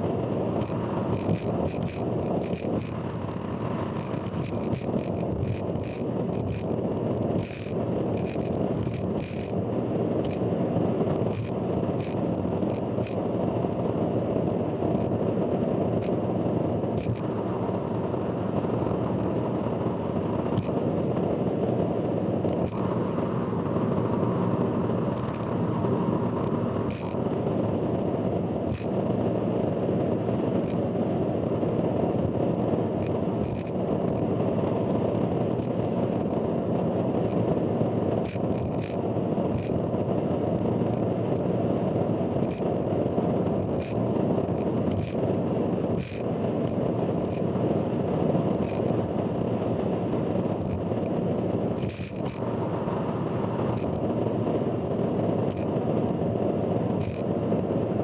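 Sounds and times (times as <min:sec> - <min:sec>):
road and engine rumble: 0:00.0 - 0:58.0
sharp clicks: 0:39.6 - 0:39.9, 0:53.8 - 0:54.0, 0:57.0 - 0:57.2.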